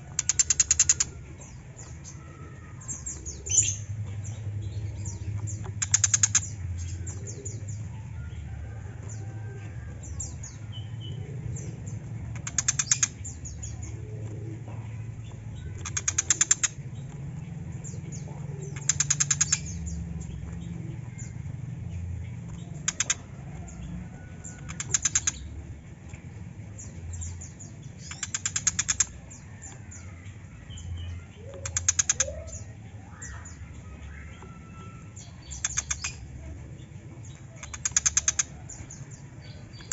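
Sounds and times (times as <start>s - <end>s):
bird rapid harsh chattering: 0.0s - 1.6s, 5.0s - 7.5s, 12.3s - 13.9s, 15.5s - 17.0s, 18.2s - 20.0s, 22.6s - 23.3s, 24.5s - 25.5s, 27.9s - 29.4s, 31.6s - 33.5s, 35.4s - 36.3s, 37.5s - 39.9s.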